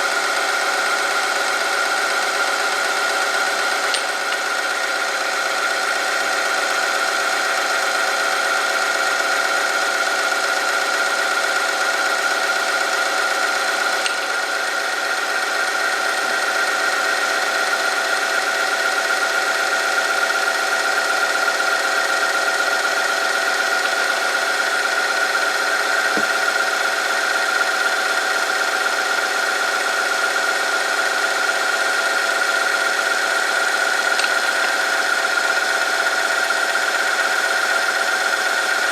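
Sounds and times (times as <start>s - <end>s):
test machine high-pitched whine: 21.5s - 38.9s.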